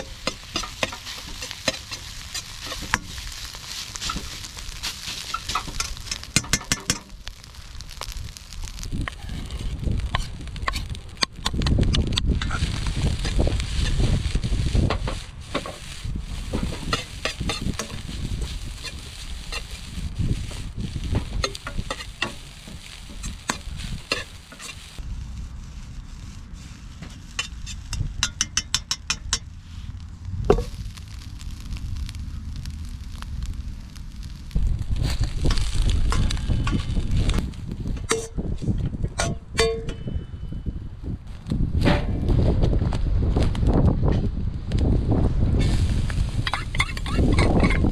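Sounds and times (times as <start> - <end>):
metal ladle scraping a pan: 0.0 - 7.1, 10.1 - 11.0, 15.1 - 25.0, 26.6 - 29.3, 37.9 - 38.4, 46.4 - 47.9
food sizzling in a wok: 0.0 - 38.4, 45.6 - 47.9.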